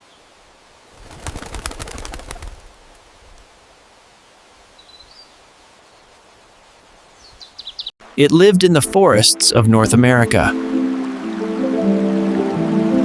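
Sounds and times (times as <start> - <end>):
bird wings flapping: 0.9 - 3.5
small bird chirp: 7.2 - 7.9.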